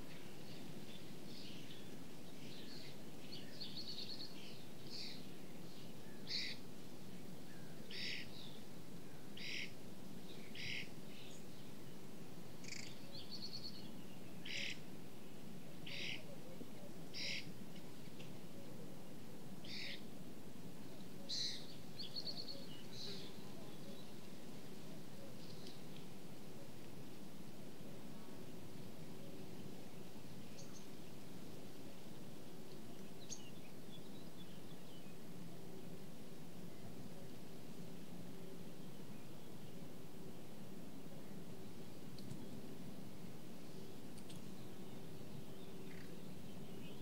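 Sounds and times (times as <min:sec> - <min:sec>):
birds calling: 0:06.1 - 0:06.6, 0:07.6 - 0:08.6, 0:09.4 - 0:11.4, 0:15.8 - 0:16.4, 0:17.2 - 0:17.5, 0:19.6 - 0:20.0.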